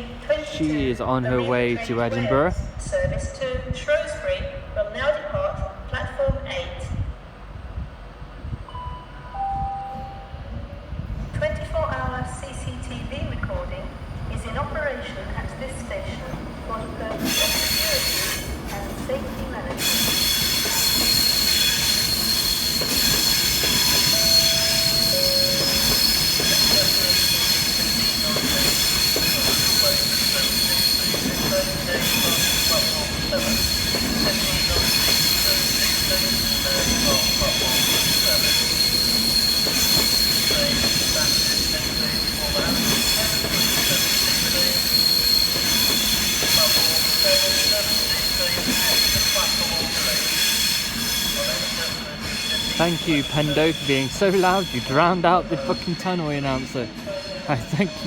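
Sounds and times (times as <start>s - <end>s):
electric train departing: 0.0s - 58.0s
wheels squealing on rails: 13.9s - 58.0s.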